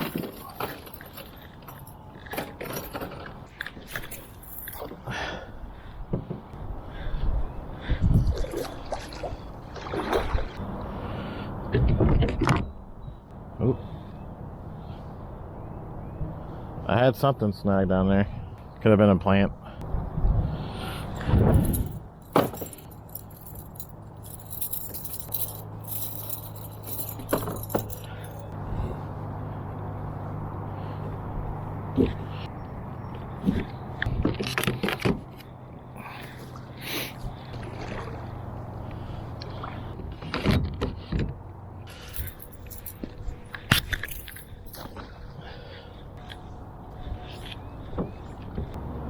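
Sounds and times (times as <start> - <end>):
fishing gear clinking and rattling: 0.0 - 5.2, 21.0 - 28.6, 34.4 - 37.4, 41.8 - 48.8.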